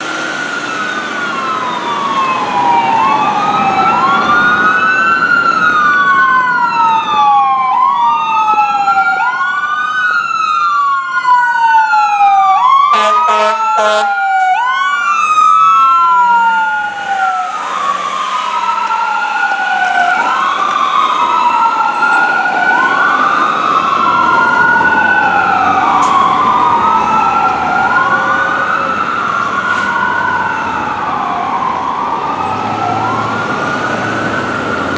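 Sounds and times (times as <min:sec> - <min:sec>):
fire engine siren wailing: 0:00.0 - 0:34.9
horn blasts: 0:12.9 - 0:14.2.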